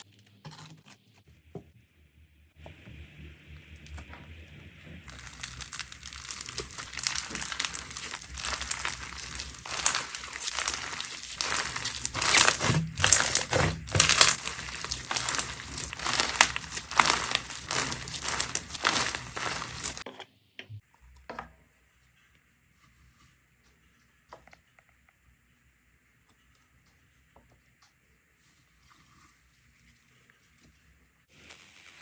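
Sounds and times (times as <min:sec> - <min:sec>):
slime crackling and popping: 0:05.1 - 0:20.0.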